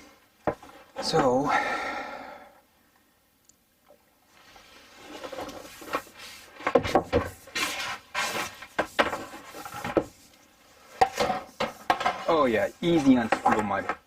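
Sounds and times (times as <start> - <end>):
plastic plumbing parts rubbing: 4.4 - 14.0.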